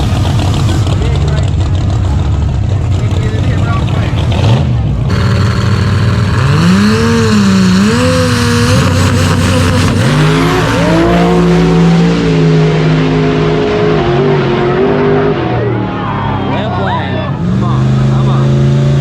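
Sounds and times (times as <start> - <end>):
drag racing car engine revving: 0.0 - 19.0.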